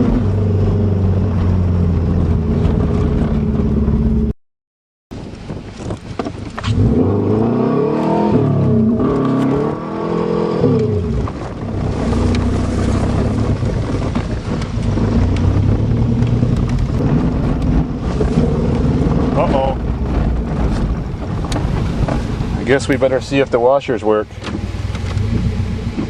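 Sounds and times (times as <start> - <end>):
car engine revving: 6.6 - 26.0.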